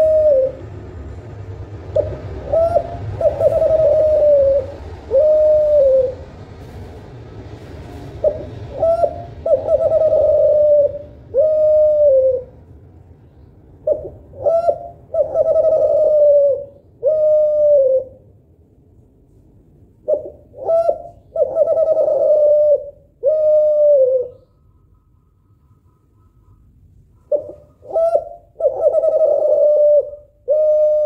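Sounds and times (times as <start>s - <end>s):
dove cooing: 0.0s - 0.8s, 1.9s - 6.4s, 8.2s - 12.6s, 13.8s - 18.2s, 20.0s - 24.6s, 27.2s - 31.0s.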